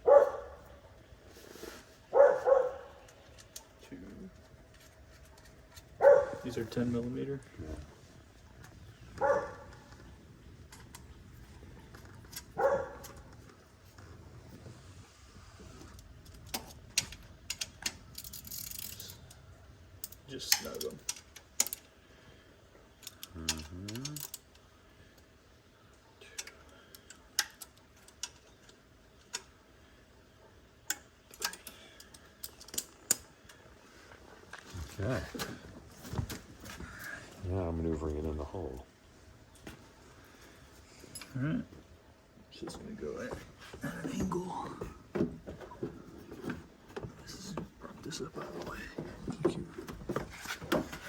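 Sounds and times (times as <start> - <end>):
dog barking: 0.0 - 0.6, 2.1 - 3.0, 6.0 - 6.5, 9.2 - 9.7, 12.6 - 13.2
metallic clicks of hand tools: 20.0 - 21.9, 23.0 - 24.6, 30.9 - 33.3.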